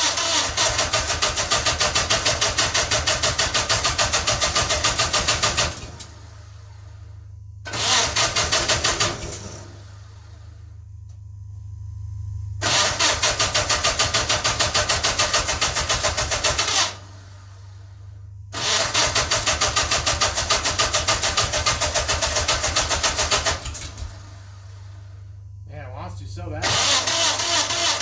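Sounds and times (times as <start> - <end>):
electric starter cranking engine: 0.0 - 6.3, 7.6 - 10.6, 12.6 - 17.2, 18.5 - 24.4, 26.4 - 28.0.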